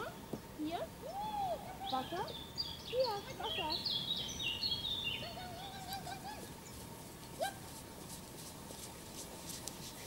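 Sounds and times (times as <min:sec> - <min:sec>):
wild birds singing: 0:00.0 - 0:08.1.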